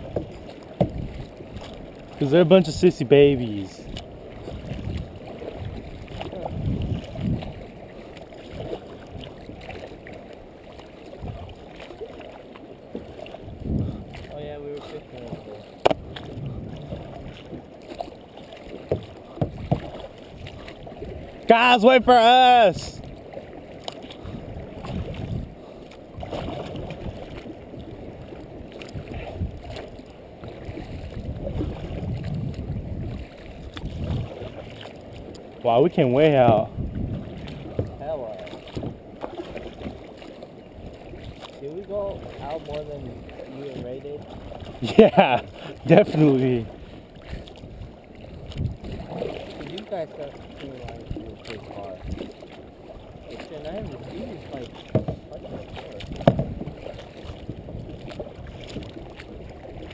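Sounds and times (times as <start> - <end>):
water splashing around kayak: 0.0 - 59.9
wind buffeting microphone: 3.7 - 7.8, 11.2 - 11.6, 13.3 - 14.5, 15.9 - 17.6, 24.2 - 29.8, 30.4 - 34.7, 35.9 - 39.0, 44.0 - 49.4.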